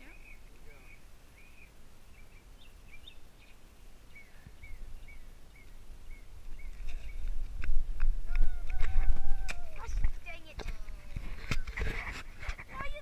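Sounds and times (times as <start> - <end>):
bird chirping: 0.0 - 7.5
outdoor background noise: 0.0 - 13.0.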